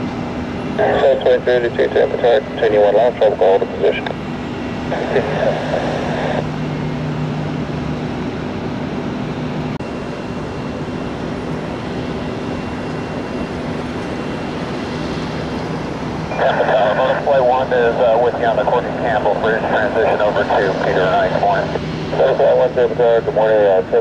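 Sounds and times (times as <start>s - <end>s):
aircraft engines running: 0.0s - 24.0s
burst of radio noise: 0.8s - 4.2s, 4.9s - 6.5s, 16.3s - 24.0s.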